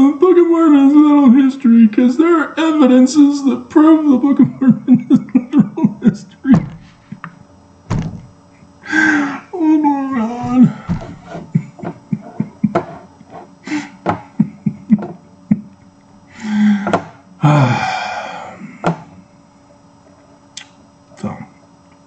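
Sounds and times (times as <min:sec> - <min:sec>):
knocks and thumps: 0:06.5 - 0:07.3, 0:07.9 - 0:08.3, 0:10.4 - 0:13.0.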